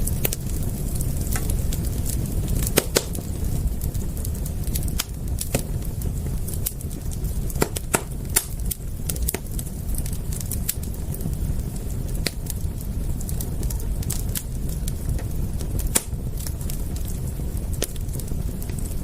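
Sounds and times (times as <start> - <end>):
fire crackling and popping: 0.0 - 19.0
low rumble of burning fire: 0.0 - 19.0.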